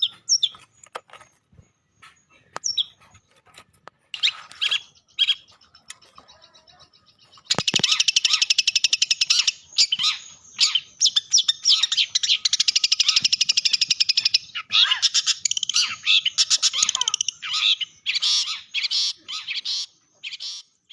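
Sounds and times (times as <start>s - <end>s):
songbird singing: 0.0s - 20.9s.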